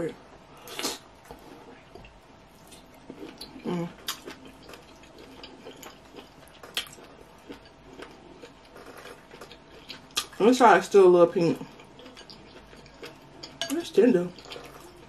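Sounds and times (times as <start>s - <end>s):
person humming: 3.6s - 4.0s.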